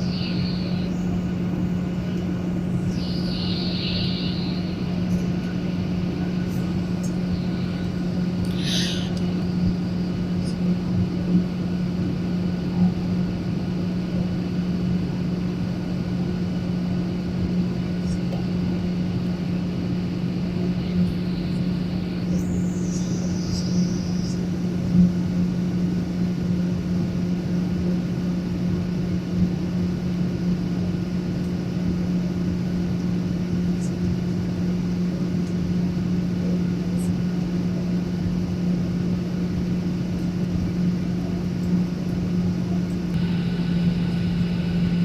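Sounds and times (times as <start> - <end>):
brief high whine: 0.0 - 9.6, 43.1 - 45.0
cabin air rush: 0.0 - 11.4, 43.1 - 45.0
airliner engines droning: 0.0 - 45.0.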